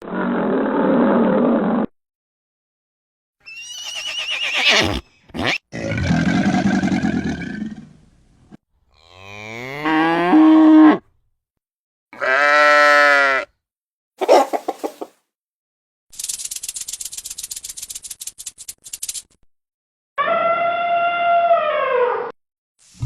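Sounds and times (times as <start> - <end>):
cow mooing: 9.0 - 11.0, 12.2 - 13.5
animal calls: 14.2 - 15.1.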